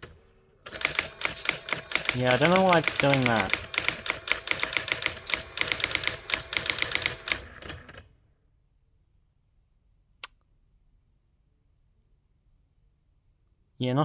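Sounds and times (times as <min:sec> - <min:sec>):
typewriter striking characters: 0:00.7 - 0:07.8
sharp click: 0:10.2 - 0:10.4.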